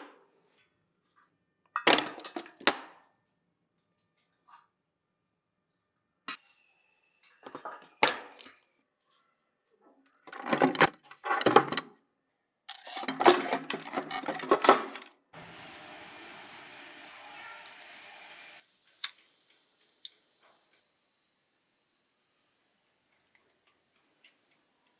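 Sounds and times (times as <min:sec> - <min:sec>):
metal parts clinking and clattering: 0:10.1 - 0:11.8, 0:12.7 - 0:15.1.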